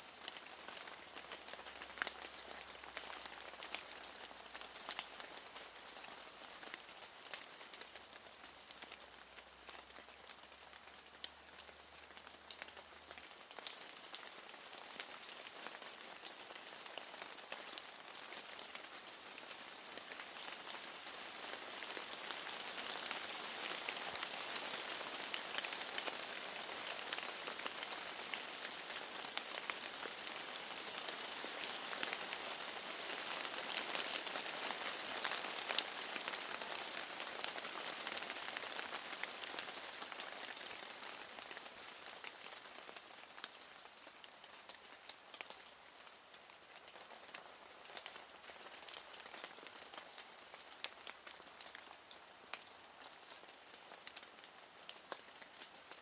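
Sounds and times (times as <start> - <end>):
rain hissing: 18.4 - 56.0.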